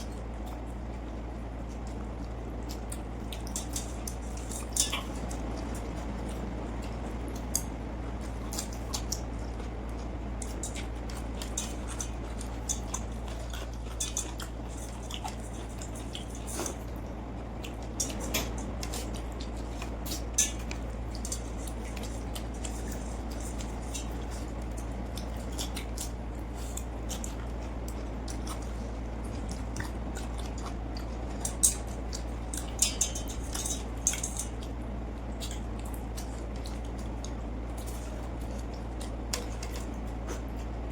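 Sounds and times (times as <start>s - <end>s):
eating clicks and wet taps on plate: 17.6s - 34.8s.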